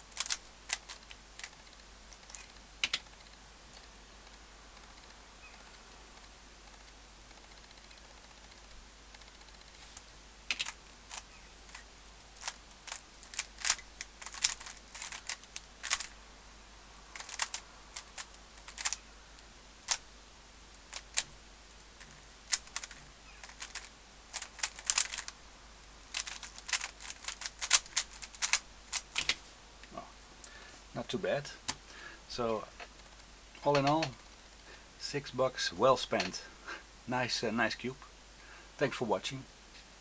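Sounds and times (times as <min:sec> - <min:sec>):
plastic cube clicking: 0:00.1 - 0:05.8, 0:10.5 - 0:16.2, 0:17.1 - 0:19.0, 0:22.5 - 0:25.4, 0:26.1 - 0:29.4.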